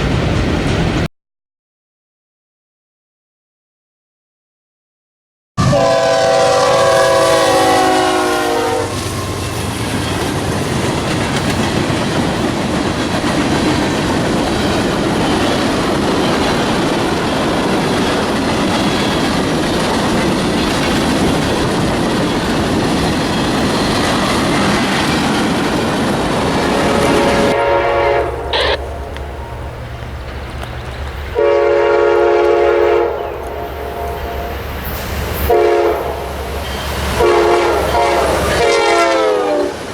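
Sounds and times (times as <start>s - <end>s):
train rolling past: 0.0s - 1.1s, 5.6s - 39.9s
diesel locomotive horn: 5.6s - 9.7s, 26.5s - 30.0s, 31.3s - 39.9s.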